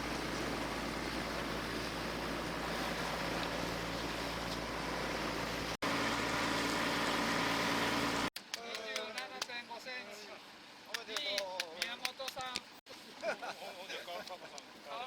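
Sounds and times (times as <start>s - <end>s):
boat engine running: 0.0s - 8.3s
water noise: 0.0s - 8.4s
wind: 0.0s - 15.0s.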